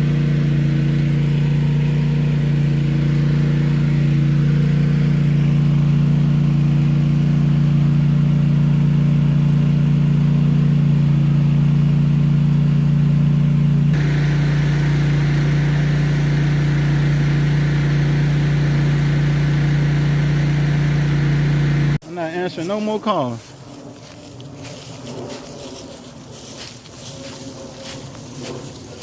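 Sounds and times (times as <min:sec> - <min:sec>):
vehicle engine hum: 0:00.0 - 0:22.0.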